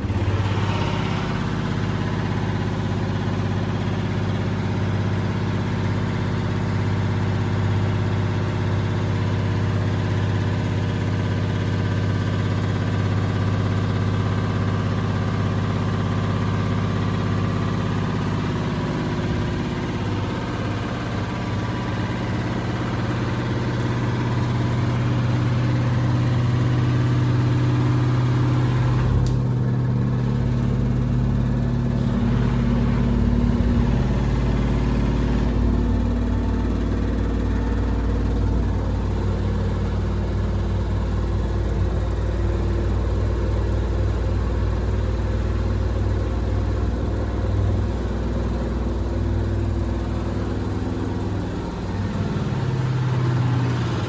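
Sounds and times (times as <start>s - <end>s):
washing machine motor humming: 17.0s - 54.0s.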